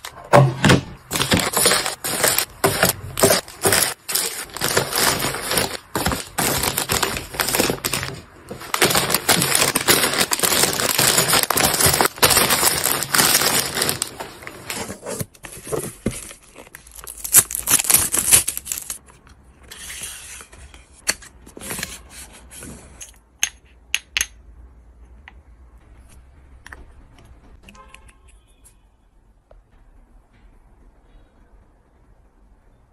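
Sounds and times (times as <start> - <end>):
plastic packaging crinkling: 1.0 - 19.0.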